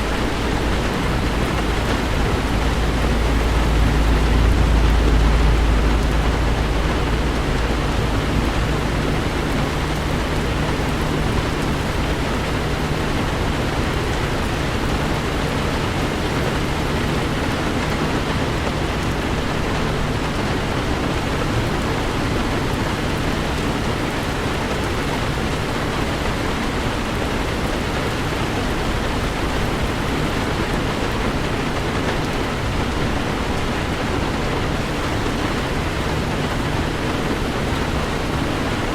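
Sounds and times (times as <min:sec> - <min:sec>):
deep low rumble: 0:00.0 - 0:17.3
rain on a car: 0:00.0 - 0:38.9
road noise: 0:00.0 - 0:38.9.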